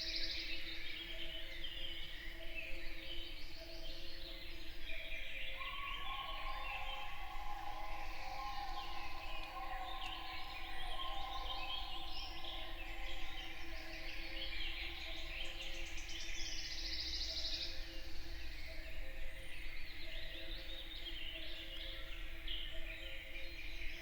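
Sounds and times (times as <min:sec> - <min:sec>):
songbirds singing: 0:00.0 - 0:24.0.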